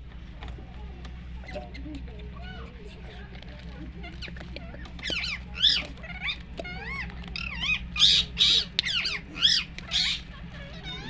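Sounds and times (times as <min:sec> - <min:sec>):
animal squawking calls: 0:04.0 - 0:11.0.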